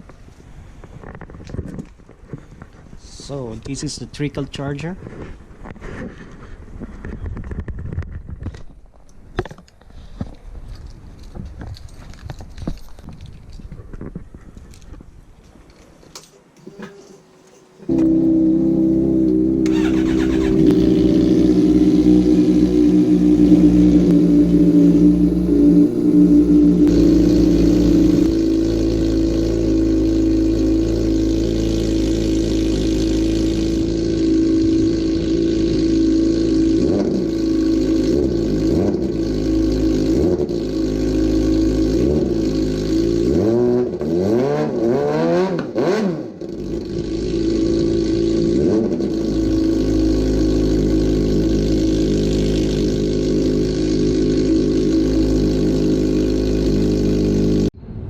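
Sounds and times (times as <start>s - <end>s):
motorcycle engine idling and revving: 17.9s - 57.8s.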